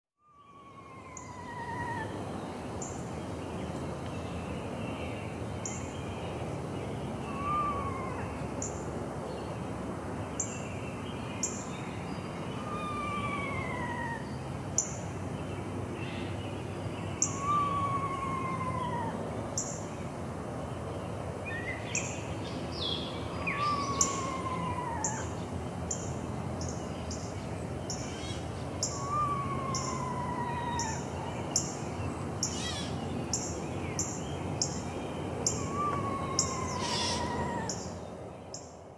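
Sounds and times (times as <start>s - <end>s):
outdoor background noise: 0.2s - 38.9s.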